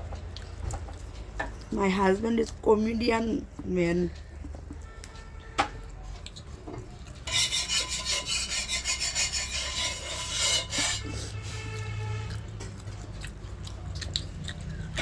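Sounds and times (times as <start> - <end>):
rasping scraping rub: 7.3 - 11.8.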